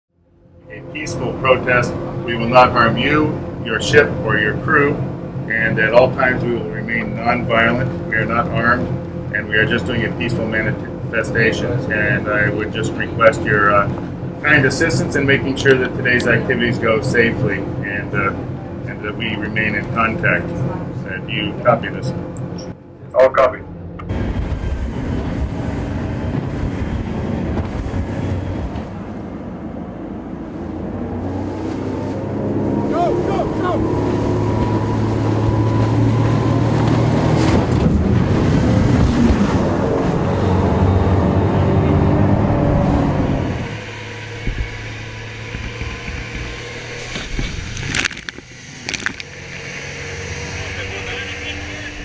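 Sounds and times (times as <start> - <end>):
boat engine rumble: 0.1 - 52.0
wind buffeting microphone: 24.0 - 49.2
sharp knocks and clicks: 44.4 - 49.2.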